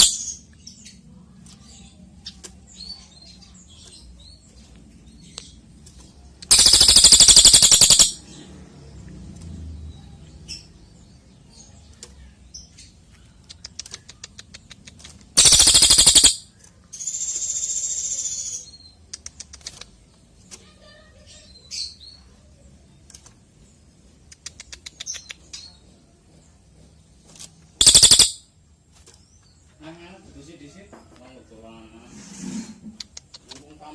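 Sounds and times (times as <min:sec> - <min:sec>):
buzzy high bird trill: 0:00.0 - 0:00.5, 0:06.5 - 0:08.2, 0:15.4 - 0:18.9, 0:27.8 - 0:28.5
rapid rattling bird trills: 0:00.0 - 0:00.5, 0:06.5 - 0:08.3, 0:15.3 - 0:19.9, 0:27.2 - 0:28.5
high bird chirps: 0:00.0 - 0:01.0, 0:06.4 - 0:08.2, 0:15.4 - 0:19.0, 0:27.8 - 0:28.6.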